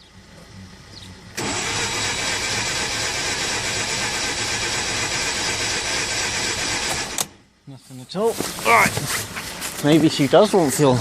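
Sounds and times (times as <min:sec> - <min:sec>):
engine starter cranking: 0:01.4 - 0:07.4.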